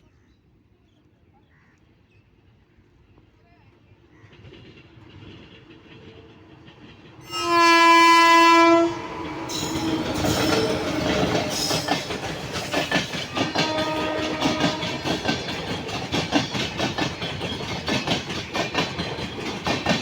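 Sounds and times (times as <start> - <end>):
train wheels clattering: 4.3 - 20.0
train horn blast: 7.2 - 15.6.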